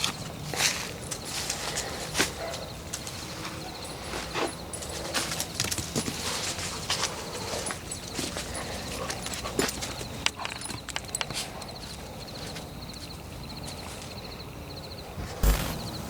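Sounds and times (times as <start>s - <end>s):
footsteps on forest floor: 15.3s - 16.0s.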